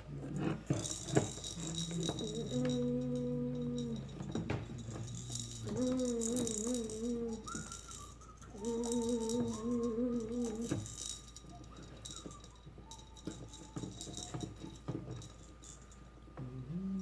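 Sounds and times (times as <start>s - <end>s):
plastic toy parts rattling: 0.2s - 16.1s
person humming: 5.4s - 10.9s.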